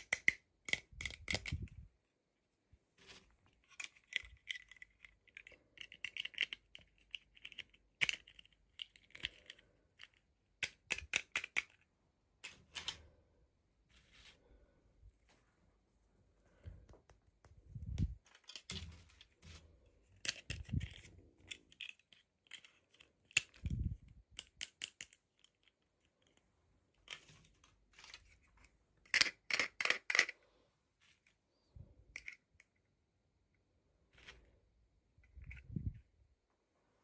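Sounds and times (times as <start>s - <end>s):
plastic clicks and rustles: 3.0s - 13.2s, 16.6s - 30.4s.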